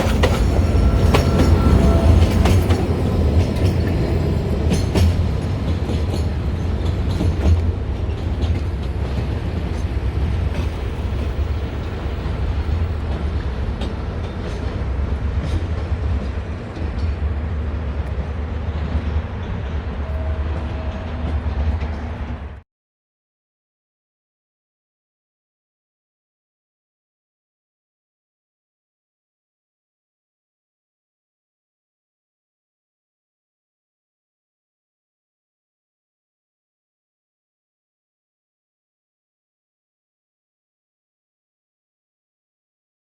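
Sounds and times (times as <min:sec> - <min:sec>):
train rumbling: 0:00.0 - 0:22.6
wheels clicking over rail joints: 0:00.0 - 0:22.6.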